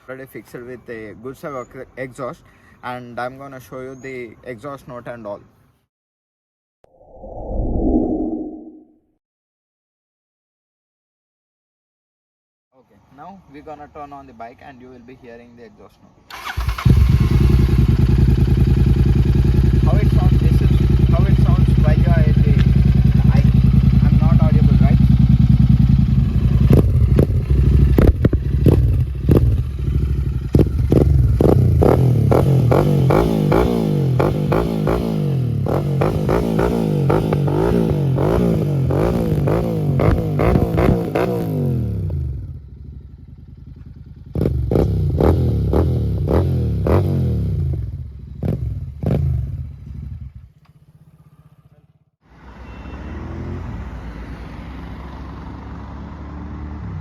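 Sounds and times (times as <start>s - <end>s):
motorcycle engine revving: 16.3s - 51.8s.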